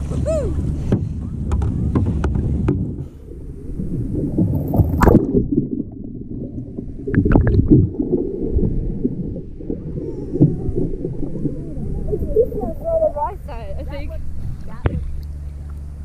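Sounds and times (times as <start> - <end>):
sharp water splashes: 4.1 - 12.7.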